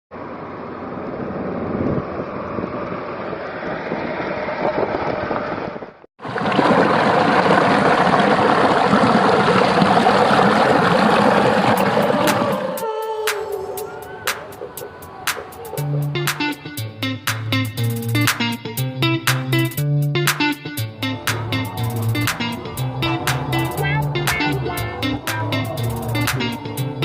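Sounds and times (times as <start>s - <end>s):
waterfall rushing: 6.2s - 13.0s, 21.1s - 27.0s.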